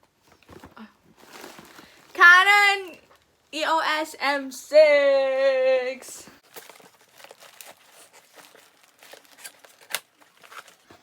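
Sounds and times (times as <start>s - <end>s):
packaging crinkling: 0.4s - 2.2s, 6.4s - 11.0s.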